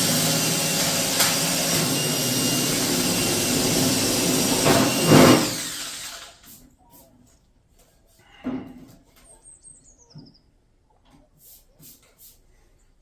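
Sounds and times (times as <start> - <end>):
power drill boring through metal: 0.0 - 6.5.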